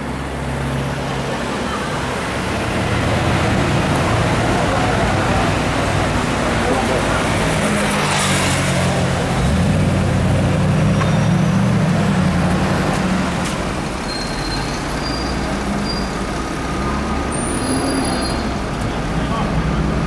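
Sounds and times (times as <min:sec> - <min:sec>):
city traffic rumble: 0:00.0 - 0:20.0
faint high squeaks: 0:14.0 - 0:16.2.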